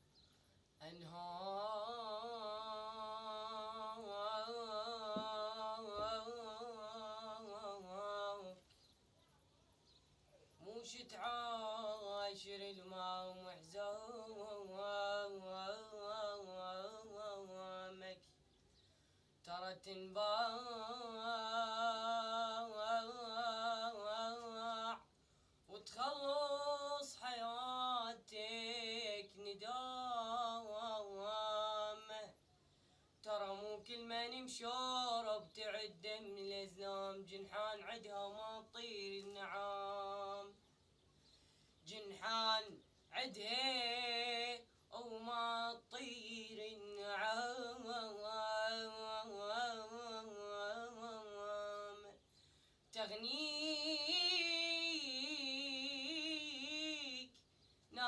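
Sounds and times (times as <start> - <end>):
man singing unaccompanied: 0.0 - 8.9, 10.5 - 18.6, 19.4 - 32.5, 33.2 - 41.0, 41.8 - 58.0.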